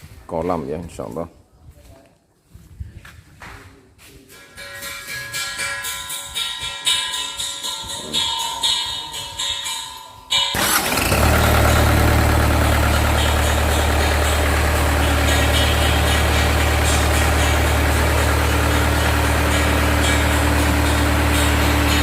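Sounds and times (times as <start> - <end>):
diesel engine running steadily: 10.6 - 22.0.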